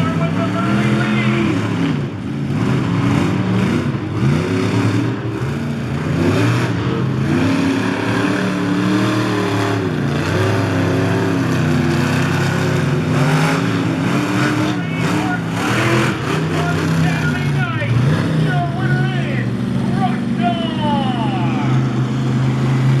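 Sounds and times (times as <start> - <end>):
monster truck engine revving: 0.0 - 23.0.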